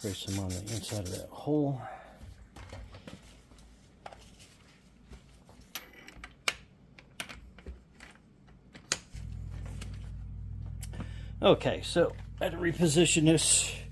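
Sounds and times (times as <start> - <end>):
steady low hum: 9.2 - 13.9.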